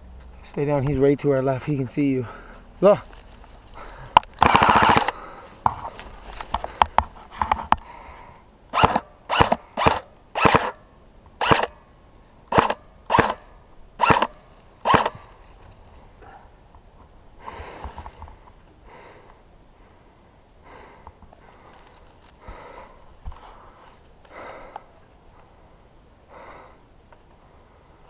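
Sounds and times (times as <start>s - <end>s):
short hard breaths: 2.2s - 2.7s, 3.7s - 4.2s, 18.8s - 24.9s
airsoft rifle firing burst: 4.4s - 5.2s, 8.8s - 10.8s, 11.4s - 11.7s, 12.5s - 13.4s, 14.0s - 15.2s.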